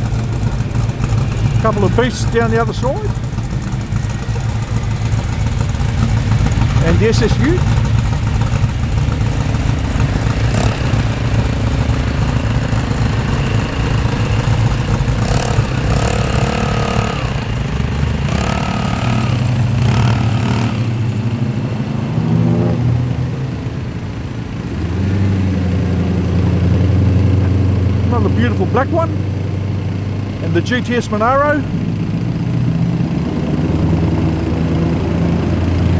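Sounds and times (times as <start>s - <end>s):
car engine deep drone: 0.0s - 35.9s
car exhausts rumbling: 0.0s - 35.9s.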